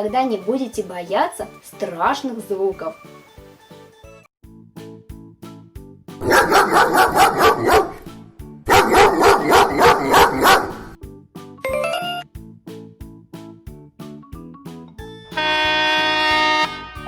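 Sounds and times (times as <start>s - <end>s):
light background music: 0.0s - 17.0s
dog barking: 6.2s - 11.0s.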